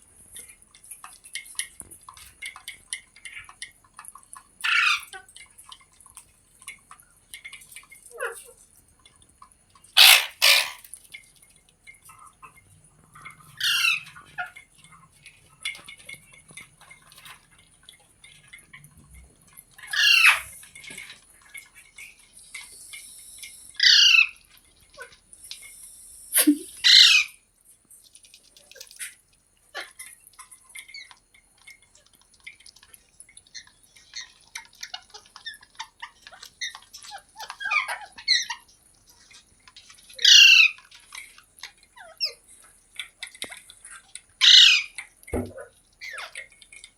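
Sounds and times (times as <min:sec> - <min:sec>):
parrot chirping and chattering: 0:00.3 - 0:08.7, 0:09.8 - 0:11.3, 0:11.9 - 0:27.4, 0:32.8 - 0:45.1, 0:45.9 - 0:46.9
parrot screeching: 0:04.6 - 0:05.1, 0:10.0 - 0:10.9, 0:13.6 - 0:14.1, 0:19.9 - 0:20.5, 0:23.8 - 0:24.4, 0:26.8 - 0:27.4, 0:40.2 - 0:40.8, 0:44.4 - 0:45.0.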